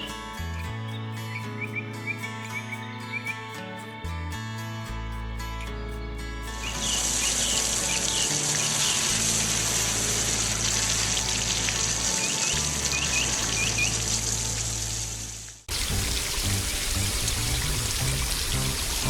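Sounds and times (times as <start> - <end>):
low background music: 0.0 - 19.0
bird chirps: 6.6 - 9.1
running water hissing: 6.6 - 19.0.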